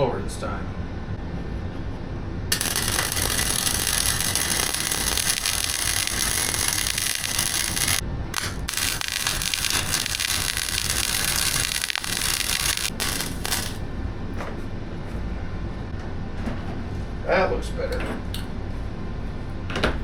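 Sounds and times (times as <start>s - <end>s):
welding arc crackling: 2.5s - 13.9s.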